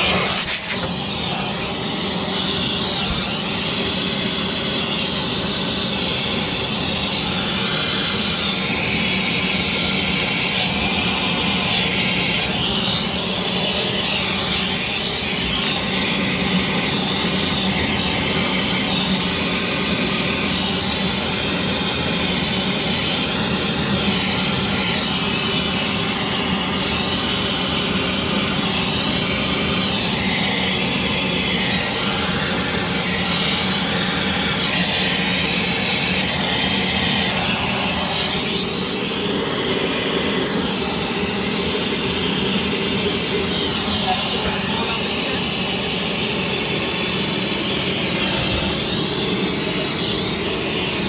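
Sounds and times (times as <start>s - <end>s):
vacuum cleaner running: 0.0s - 51.0s.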